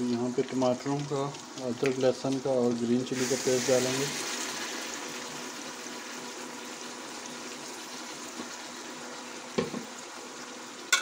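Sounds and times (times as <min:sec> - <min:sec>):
meat frying in hot oil: 0:00.0 - 0:11.0
knock: 0:09.6 - 0:09.9.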